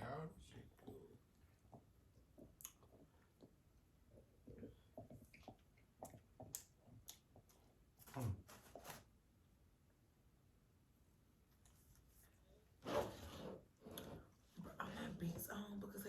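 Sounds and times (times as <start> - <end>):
soft chewing: 0.6 - 9.1.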